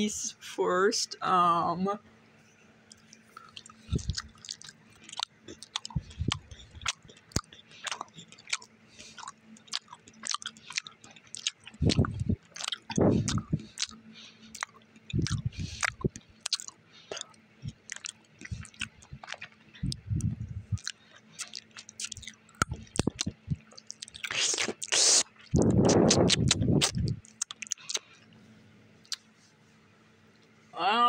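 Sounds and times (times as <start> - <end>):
wet mouth clicks and smacks: 2.9 - 28.1, 29.0 - 29.3
person chewing chocolate: 2.9 - 28.4, 29.0 - 29.3
low thumps: 11.8 - 13.7, 18.5 - 20.9.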